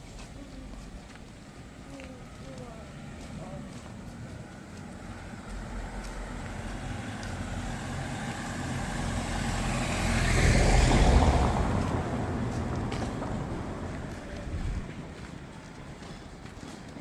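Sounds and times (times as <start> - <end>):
road noise: 0.0 - 17.0
vehicle engine passing: 2.2 - 15.5.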